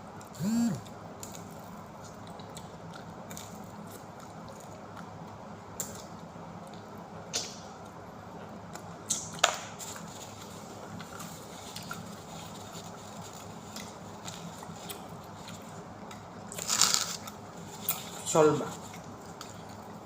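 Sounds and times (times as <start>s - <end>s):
steady low hum: 0.0s - 9.0s
eating clicks and smacks: 2.1s - 7.6s.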